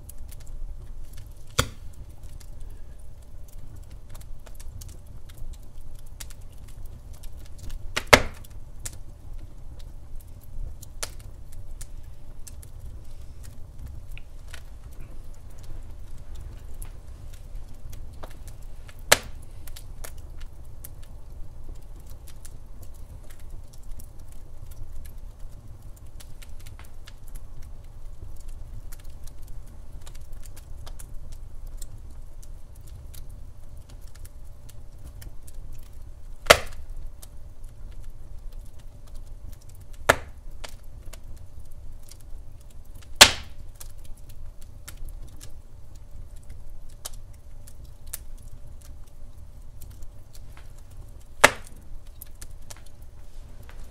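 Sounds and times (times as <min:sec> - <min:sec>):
wood fire crackling: 0:00.0 - 0:53.9
loud sharp pops: 0:01.5 - 0:02.0, 0:08.0 - 0:08.5, 0:19.0 - 0:19.8, 0:36.4 - 0:36.8, 0:40.1 - 0:40.4, 0:43.2 - 0:43.6, 0:51.4 - 0:51.8.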